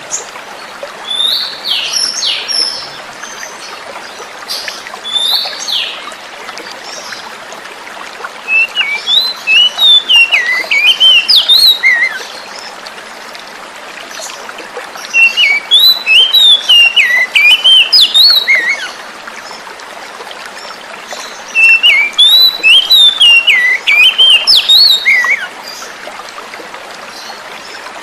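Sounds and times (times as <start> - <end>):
running water hiss: 0.0 - 28.0
bird singing: 8.5 - 12.4, 15.1 - 18.9, 21.2 - 25.5.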